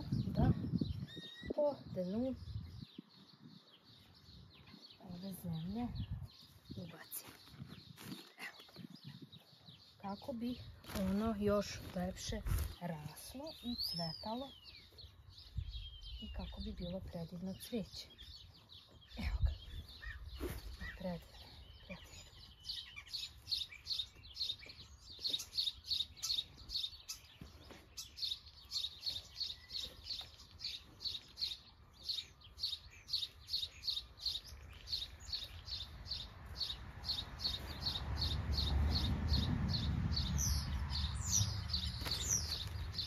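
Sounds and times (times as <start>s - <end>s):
small bird chirping: 0.0s - 43.0s.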